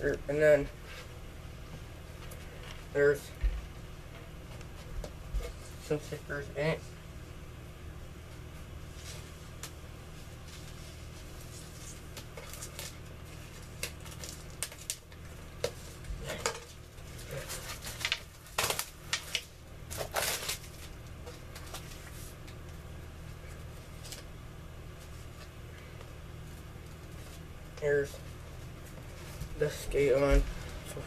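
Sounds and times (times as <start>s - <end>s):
steady low hum: 0.0s - 31.0s
packaging rustling and crinkling: 10.4s - 22.4s.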